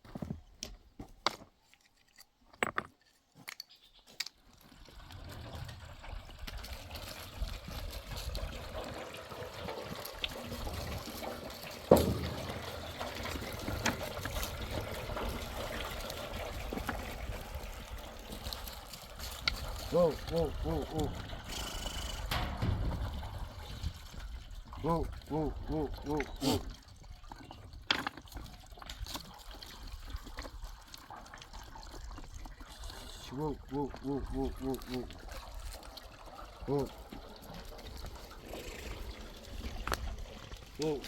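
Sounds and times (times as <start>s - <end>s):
water pouring steadily: 4.5s - 41.0s
clicks and knocks: 22.3s - 23.6s.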